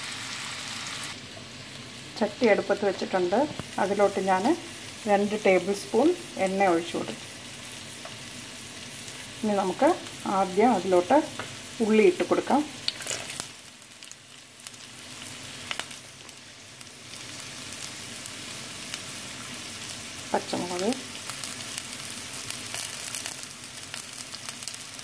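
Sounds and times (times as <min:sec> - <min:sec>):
shallots sizzling in hot oil: 0:00.0 - 0:25.0
oil crackles and pops: 0:03.4 - 0:03.8, 0:12.8 - 0:25.0.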